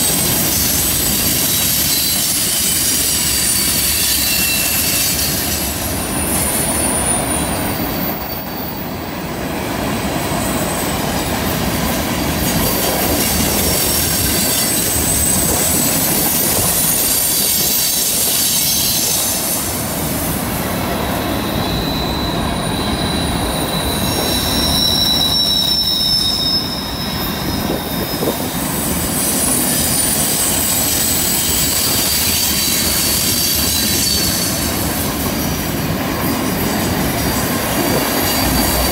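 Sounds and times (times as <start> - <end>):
train wheels squealing: 0.0 - 9.3, 10.0 - 38.9
train rumble and clatter: 0.0 - 38.9.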